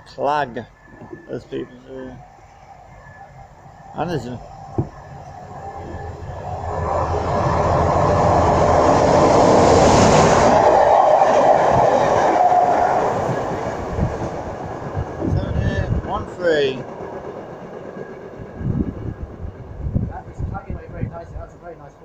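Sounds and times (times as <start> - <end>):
freight train passing: 0.0 - 22.0.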